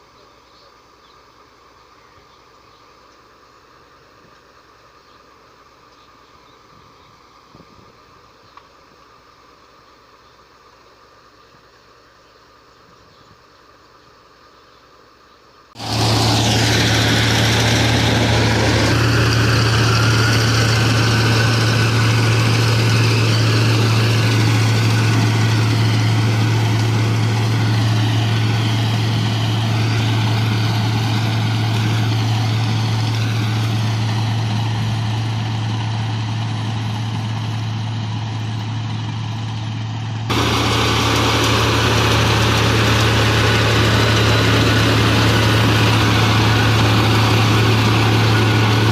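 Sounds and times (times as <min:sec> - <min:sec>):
combine harvester running: 0:15.8 - 0:48.9.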